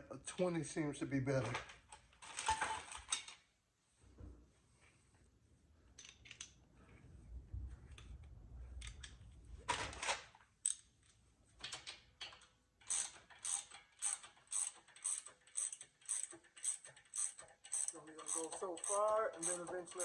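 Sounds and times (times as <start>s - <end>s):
ratchet wrench clicking: 12.8s - 20.0s.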